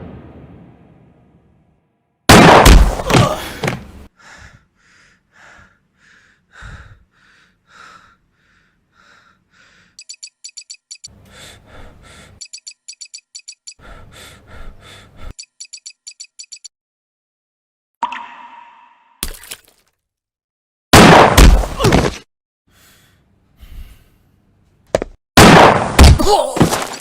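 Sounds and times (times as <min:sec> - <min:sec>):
fast high clicking: 0:10.0 - 0:11.1.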